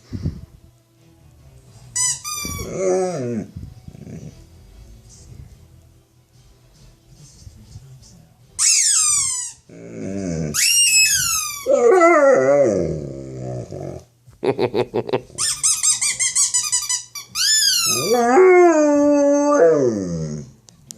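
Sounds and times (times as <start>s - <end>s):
dog howling and growling: 2.6s - 4.4s, 9.7s - 14.1s, 17.7s - 20.6s.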